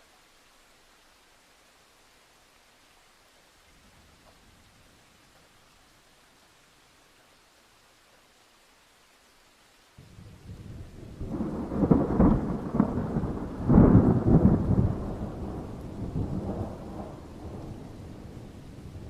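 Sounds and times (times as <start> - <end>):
rain hissing: 0.0 - 19.0
thunder rumbling and cracking: 10.1 - 19.0.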